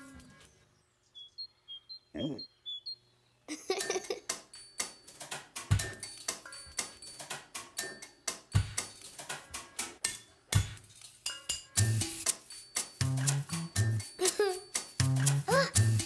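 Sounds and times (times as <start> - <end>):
percussive clicks and taps: 3.8 - 11.6, 14.3 - 16.0
deep drum beat: 13.0 - 14.0.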